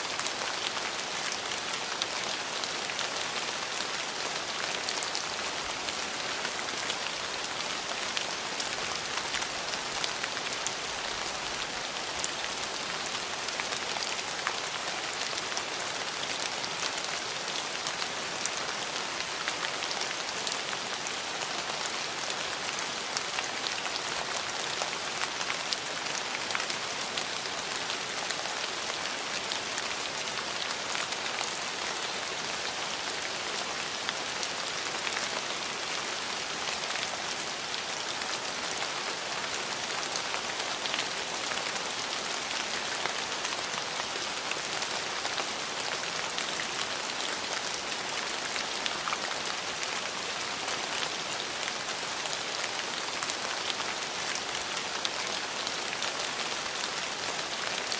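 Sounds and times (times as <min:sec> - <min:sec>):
rain on hard surfaces: 0:00.0 - 0:57.9.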